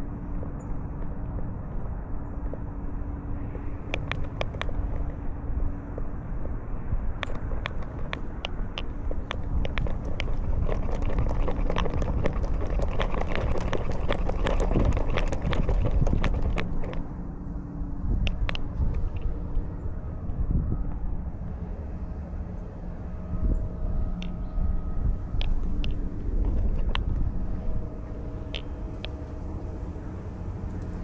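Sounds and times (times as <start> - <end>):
low rumble of rubbing movement: 0.0 - 31.0
sharp irregular clicks: 3.8 - 5.2, 7.2 - 17.0, 18.2 - 19.4, 25.4 - 27.8, 28.4 - 29.2.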